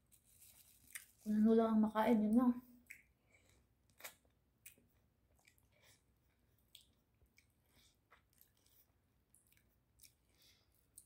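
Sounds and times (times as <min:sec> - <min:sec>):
faint chewing mouth clicks: 0:02.8 - 0:11.0.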